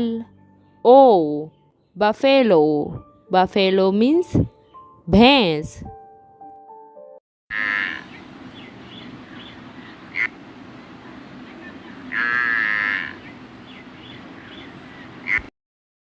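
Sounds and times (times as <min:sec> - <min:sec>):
water buffalo lowing: 0:12.0 - 0:13.3.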